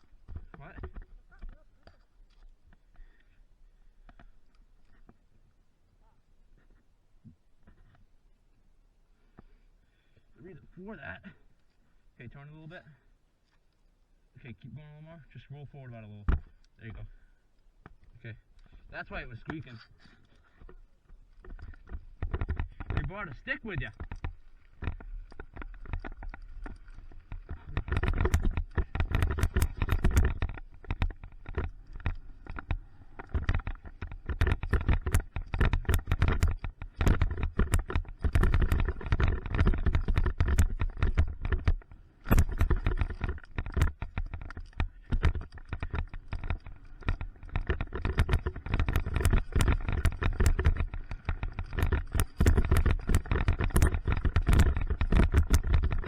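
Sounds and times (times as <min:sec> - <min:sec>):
bike rattling and clicking: 0:00.0 - 0:03.3, 0:17.9 - 0:56.0
bike tyres on dirt: 0:18.7 - 0:56.0.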